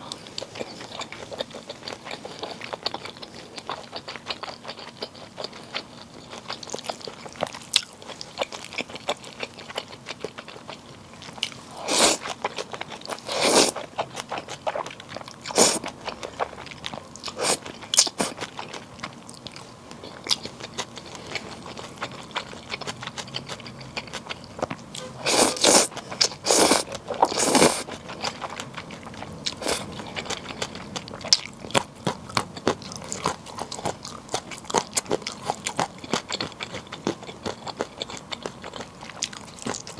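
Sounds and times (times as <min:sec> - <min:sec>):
wet chewing and crunching: 0:00.0 - 0:39.9
noodle slurping: 0:11.8 - 0:12.3, 0:25.2 - 0:28.0.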